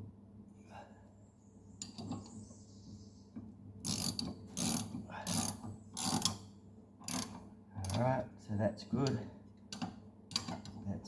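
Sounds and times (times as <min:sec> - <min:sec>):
ratchet wrench clicking: 0:03.8 - 0:06.4, 0:07.1 - 0:08.0.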